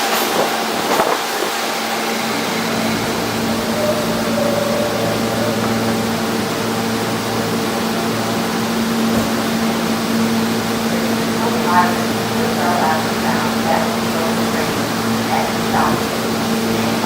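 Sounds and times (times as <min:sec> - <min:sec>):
air-conditioning units whirring: 0:00.0 - 0:17.0
low hum tone: 0:02.5 - 0:17.0.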